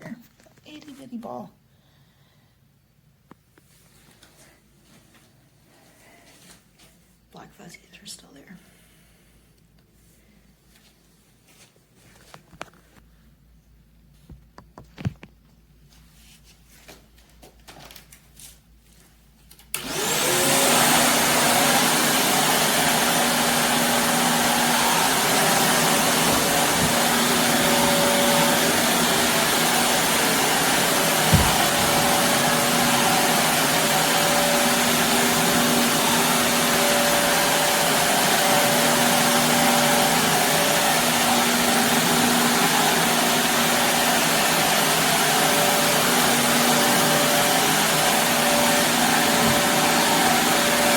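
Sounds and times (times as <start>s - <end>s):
vacuum cleaner motor whining: 19.8s - 50.9s
short thump: 31.2s - 32.3s.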